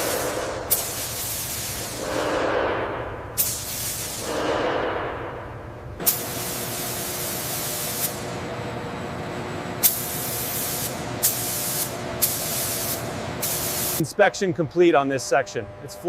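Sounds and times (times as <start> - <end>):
pressurised spray hissing: 0.0 - 2.0, 3.4 - 4.3, 6.0 - 8.3, 9.8 - 14.0
faint hum: 14.0 - 16.0.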